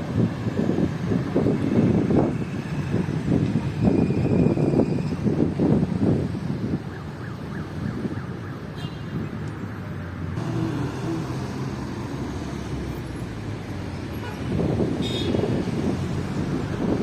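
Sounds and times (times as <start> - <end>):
road traffic: 0.0 - 17.0
wind: 0.0 - 17.0.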